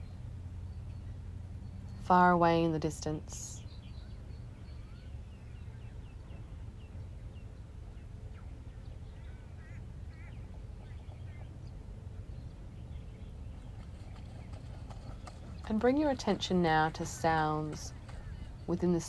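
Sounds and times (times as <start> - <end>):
distant birds chirping: 0.0 - 19.0
low background rumble: 0.0 - 19.0.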